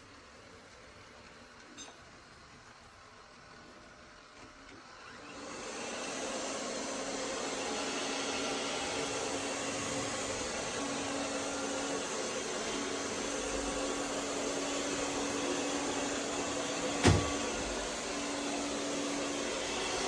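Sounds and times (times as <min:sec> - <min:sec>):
robot vacuum whirring: 0:04.6 - 0:20.0.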